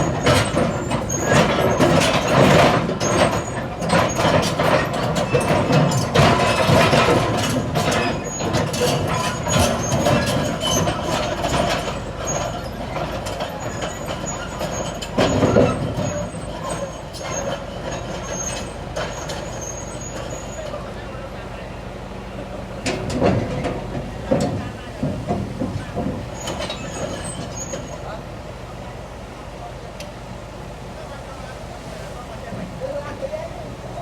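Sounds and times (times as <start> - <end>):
metallic clanks and rattles: 0.0 - 20.4, 22.8 - 28.1
diesel earthmoving machinery running: 0.0 - 34.0.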